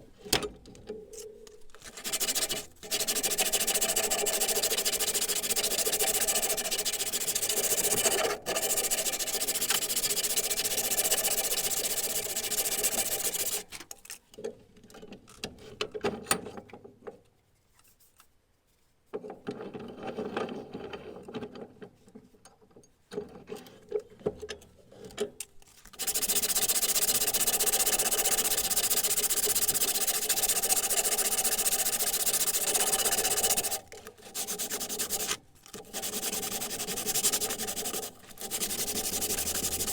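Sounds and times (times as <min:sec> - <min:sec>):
sanding steel: 0:01.9 - 0:13.6, 0:26.0 - 0:39.9
small knocks and scrapes: 0:13.7 - 0:26.0.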